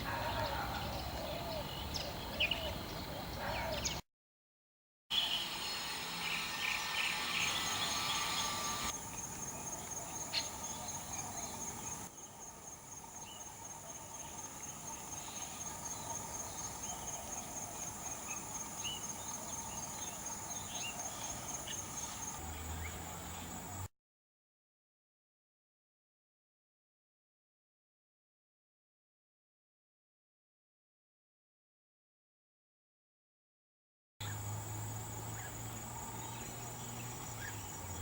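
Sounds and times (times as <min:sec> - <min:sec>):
bird chirps: 0:05.1 - 0:12.4.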